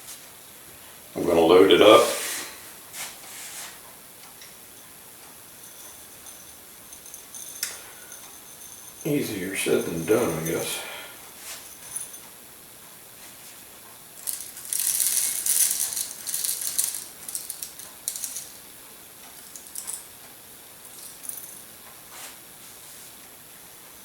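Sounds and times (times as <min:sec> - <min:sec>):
peppercorns rattling into pepper mill: 0:05.5 - 0:10.9, 0:11.5 - 0:12.3, 0:14.2 - 0:20.1, 0:20.8 - 0:21.7.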